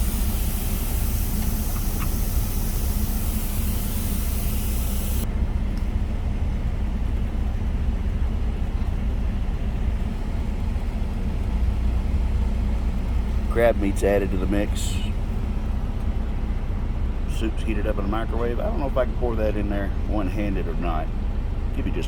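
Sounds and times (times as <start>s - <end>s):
high hiss: 0.0s - 5.2s
truck engine idling: 0.0s - 22.0s.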